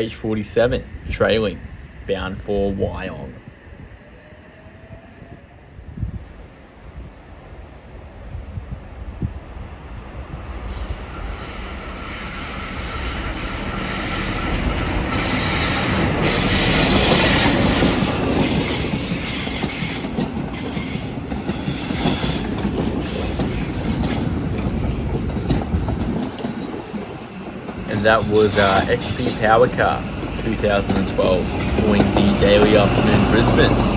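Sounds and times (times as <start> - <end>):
diesel passenger train passing: 0.0 - 33.9
train wheels clacking over rail joints: 10.7 - 33.9.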